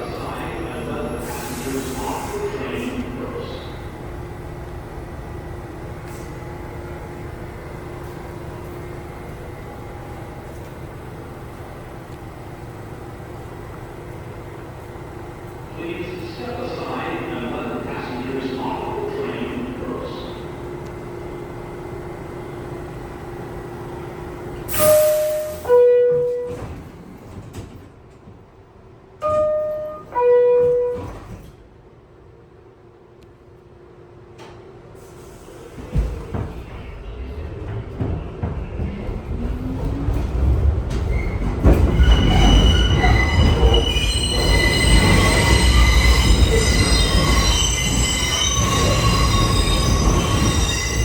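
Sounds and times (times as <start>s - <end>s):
subway train rumble: 0.0s - 51.0s
two-note train door chime: 24.7s - 26.8s, 29.2s - 31.3s.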